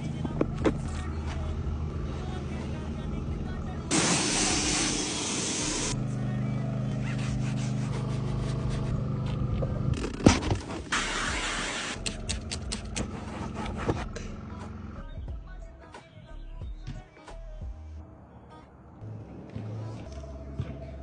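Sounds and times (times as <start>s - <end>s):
machine humming: 2.9s - 6.0s
scraping and rubbing: 7.0s - 11.0s, 12.6s - 14.2s.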